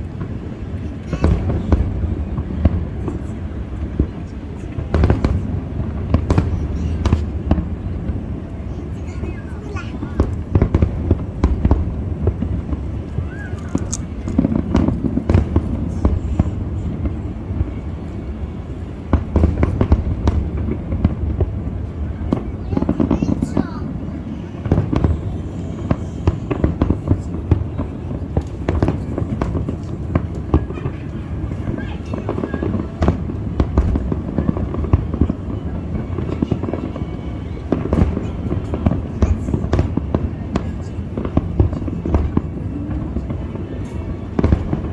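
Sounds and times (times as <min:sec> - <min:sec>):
fireworks bangs and crackles: 0:00.0 - 0:44.9
firework whistle: 0:09.9 - 0:21.2, 0:24.5 - 0:42.6.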